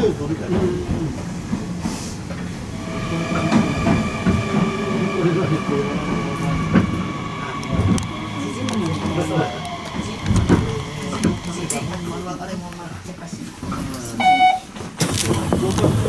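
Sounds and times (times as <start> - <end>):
train running rumble: 0.0 - 14.0
high-pitched brake whine: 2.6 - 12.7
train clicks: 6.7 - 14.2.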